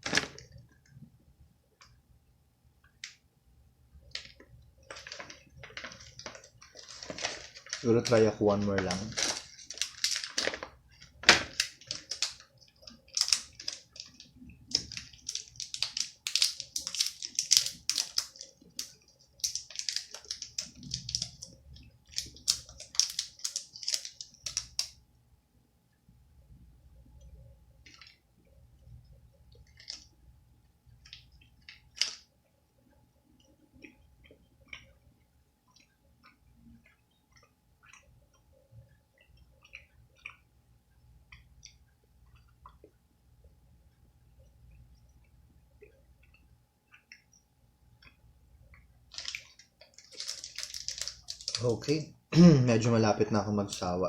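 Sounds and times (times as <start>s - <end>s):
plastic wrapper crinkling: 0.0s - 0.8s, 4.0s - 25.0s, 29.5s - 30.1s, 31.0s - 32.3s, 49.1s - 52.0s
quiet chewing: 30.9s - 51.7s.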